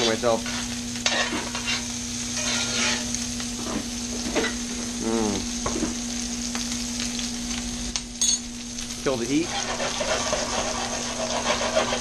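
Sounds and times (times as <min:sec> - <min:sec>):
meat sizzling in a skillet: 0:00.0 - 0:12.0.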